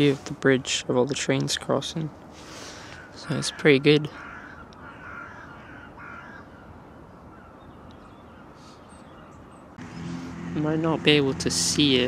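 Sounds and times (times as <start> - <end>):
birds calling: 2.4 - 12.0.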